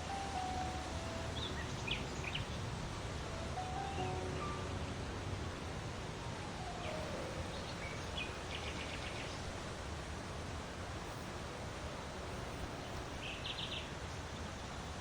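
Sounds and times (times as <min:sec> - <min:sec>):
steady rushing outdoor noise: 0:00.0 - 0:15.0
bird chirping: 0:00.1 - 0:02.7, 0:06.8 - 0:09.4, 0:12.6 - 0:14.2.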